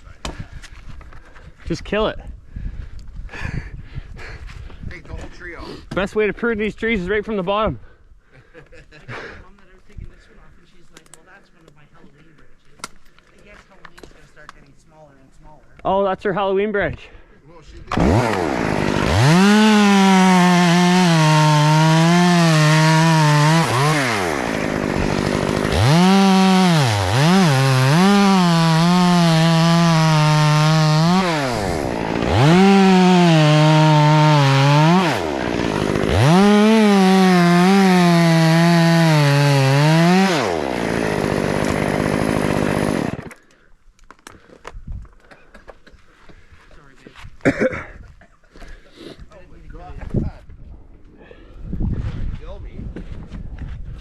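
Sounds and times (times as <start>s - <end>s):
chainsaw revving: 17.9s - 43.4s.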